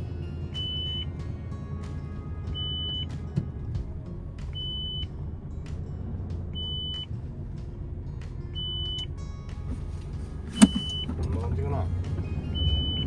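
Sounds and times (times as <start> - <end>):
truck engine rumble: 0.0 - 13.0
electronic warning beeper: 10.5 - 11.2.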